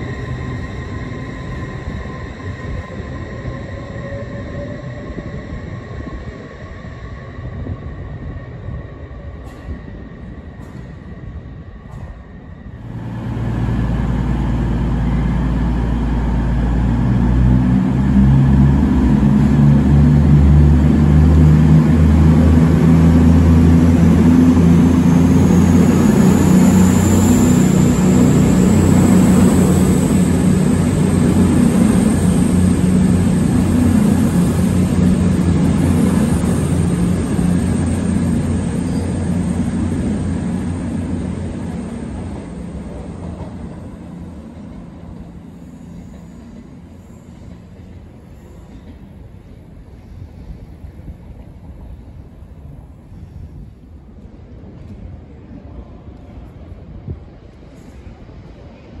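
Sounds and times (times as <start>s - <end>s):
wheel and rail noise: 9.4s - 59.0s
faint rising whine: 12.8s - 44.3s
diesel engine drone: 12.8s - 47.0s.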